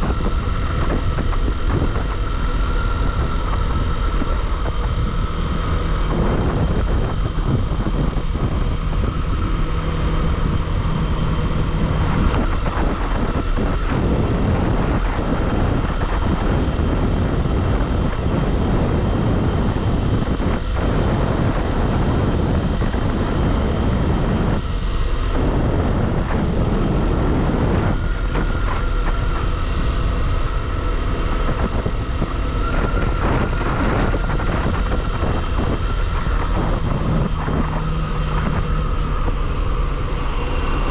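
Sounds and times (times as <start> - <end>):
motorcycle engine riding: 0.0 - 40.9
wind noise on microphone: 0.0 - 40.9.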